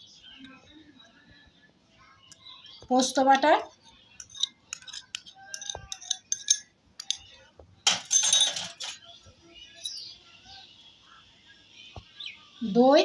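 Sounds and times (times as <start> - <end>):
spoon scraping bowl: 4.2 - 7.2
spoon clinking against bowl: 4.2 - 7.3, 7.9 - 9.0.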